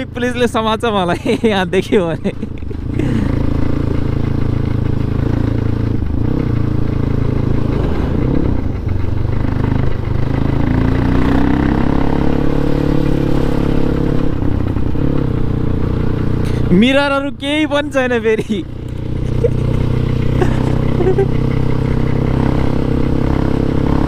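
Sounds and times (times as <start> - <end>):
dirt bike engine revving: 2.1 - 17.0, 17.7 - 24.0.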